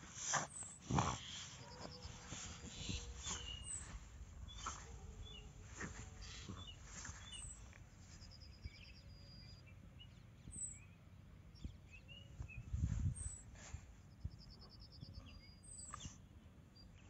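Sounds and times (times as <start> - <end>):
birds chirping: 0.0 - 17.0
low microphone rumble: 11.6 - 14.4.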